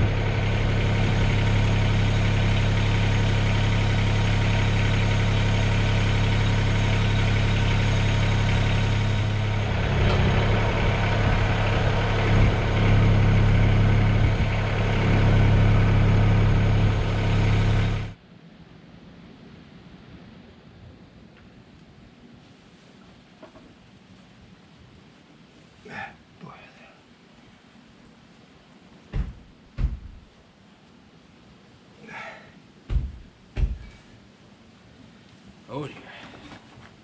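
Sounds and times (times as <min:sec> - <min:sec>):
tractor diesel engine running: 0:00.0 - 0:18.2.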